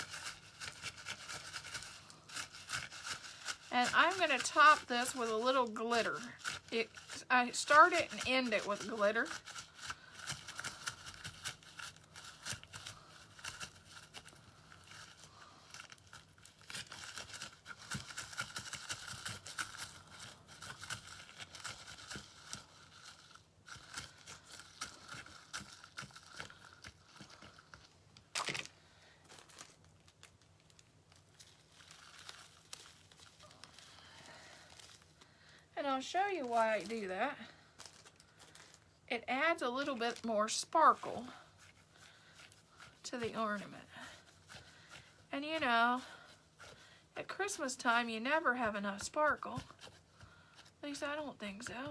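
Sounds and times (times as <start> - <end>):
craft materials crinkling and clicking: 0.0 - 35.3, 36.3 - 39.1.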